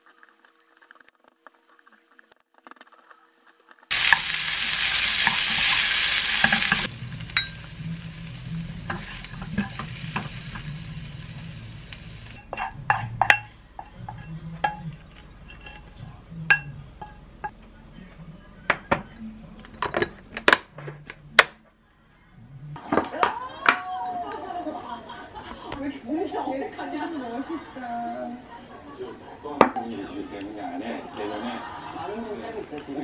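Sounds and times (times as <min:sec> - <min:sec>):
rice sizzling in a frying pan: 0:00.0 - 0:13.0
wooden spoon stirring and scraping: 0:00.0 - 0:16.1.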